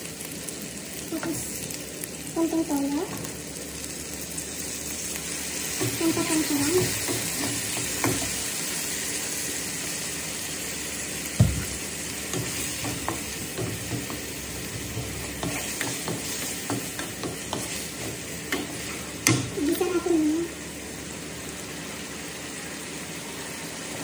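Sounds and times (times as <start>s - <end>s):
chicken sizzling in a frying pan: 0.0s - 24.0s
wooden spatula scraping a pan: 12.4s - 19.1s.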